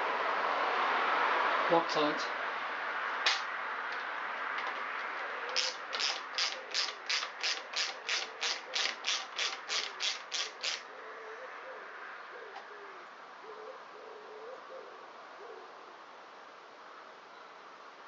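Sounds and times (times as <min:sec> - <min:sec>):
socket ratchet clicking: 0:05.5 - 0:10.8.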